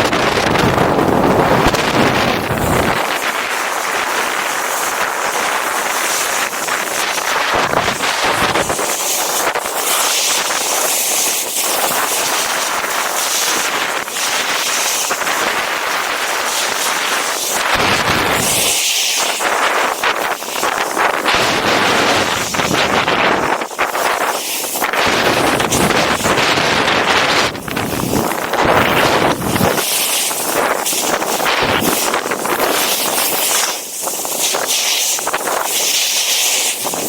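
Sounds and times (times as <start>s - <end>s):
rumbling wind gusts: 0.0s - 4.5s, 19.4s - 34.3s
wind buffeting microphone: 0.0s - 35.8s, 36.6s - 37.0s.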